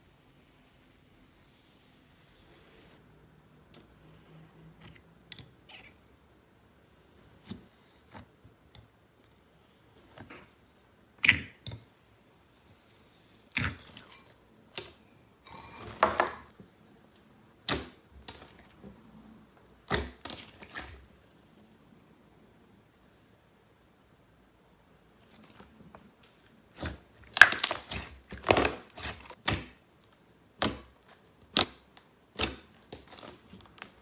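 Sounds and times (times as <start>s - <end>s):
slime crackling squish: 26.7s - 29.7s.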